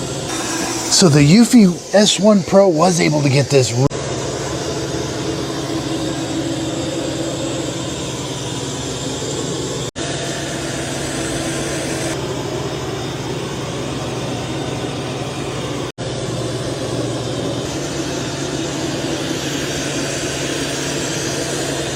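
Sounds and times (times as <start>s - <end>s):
robot vacuum motor hum: 0.1s - 12.2s.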